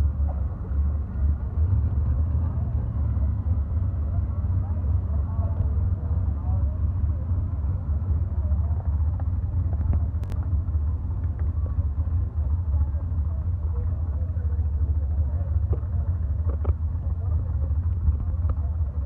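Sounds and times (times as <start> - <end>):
faint voices: 0.0 - 19.0
vehicle engine running: 0.0 - 19.0.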